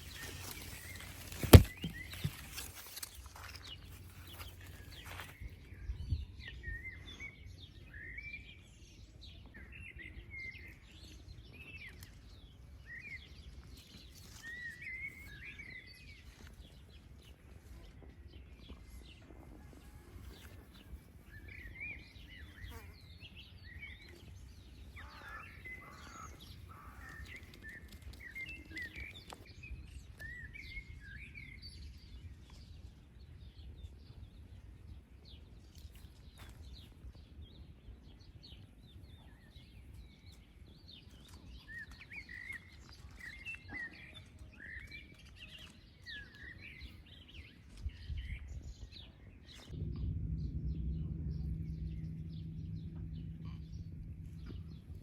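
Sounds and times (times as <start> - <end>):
songbirds chirping: 0.0 - 55.0
low wind rumble: 4.1 - 8.7, 47.8 - 55.0
steady low hum: 49.7 - 55.0.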